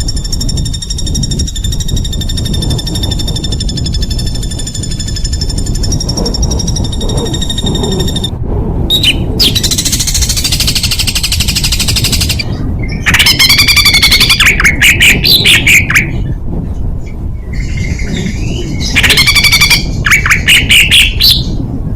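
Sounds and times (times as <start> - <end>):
bird wavering whistles: 0.0 - 8.3, 8.9 - 16.2, 17.5 - 21.6
songbird buzzy trill: 0.0 - 8.3
songbird rattle of notes: 0.0 - 8.3, 9.0 - 16.1
bird sharp chirps: 8.9 - 16.2.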